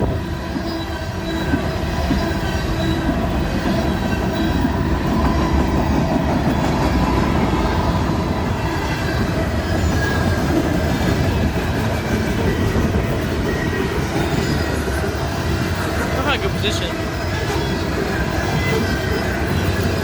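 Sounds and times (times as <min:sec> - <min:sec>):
faint high wheel squeal: 0:00.0 - 0:20.0
train wheels rumbling on rail: 0:00.0 - 0:20.0.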